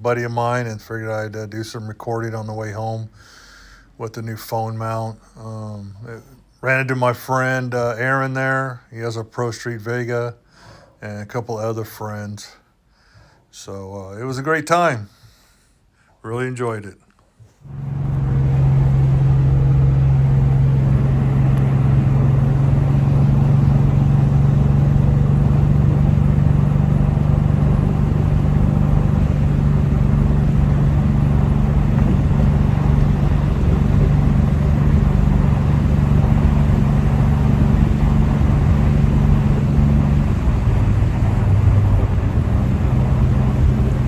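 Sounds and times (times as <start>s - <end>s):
pickup engine drone: 17.6s - 44.0s
road noise inside cab: 17.6s - 44.0s.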